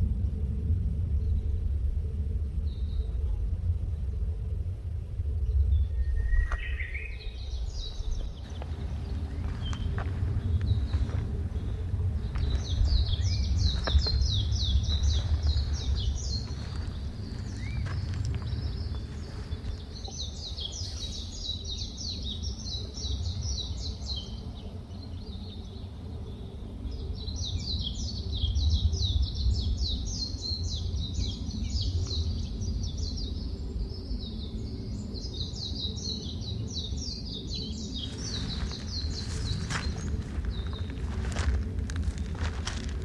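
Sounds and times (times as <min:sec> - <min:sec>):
steady low rumble: 0:00.0 - 0:06.4, 0:07.1 - 0:21.6, 0:37.8 - 0:43.0
small birds chattering: 0:06.4 - 0:24.0, 0:37.4 - 0:43.0.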